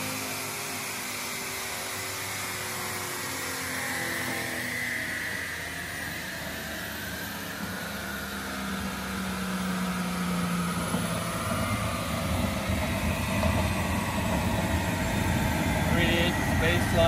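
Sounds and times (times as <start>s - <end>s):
car engine idling: 8.7s - 17.0s.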